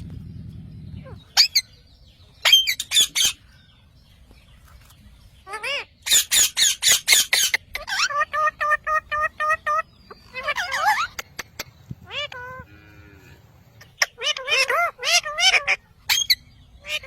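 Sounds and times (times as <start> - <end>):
parrot squawking: 1.0 - 1.7, 2.4 - 3.4, 5.4 - 12.7, 13.8 - 17.0.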